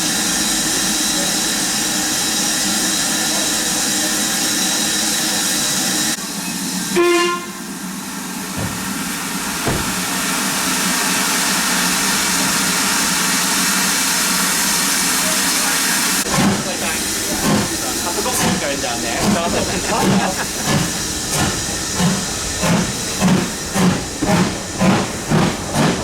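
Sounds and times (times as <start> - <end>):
steam locomotive hissing: 0.0 - 26.0
dull knocks: 8.5 - 10.2.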